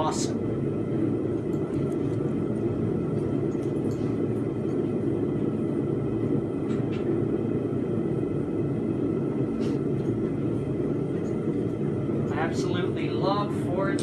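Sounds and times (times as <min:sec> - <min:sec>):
faint light clinks: 0:03.2 - 0:05.0.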